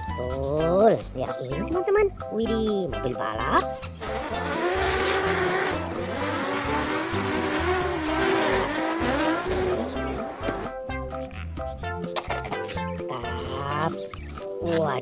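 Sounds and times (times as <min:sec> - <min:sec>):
background music with steady beat: 0:00.0 - 0:15.0
racing car engine revving: 0:03.9 - 0:10.8.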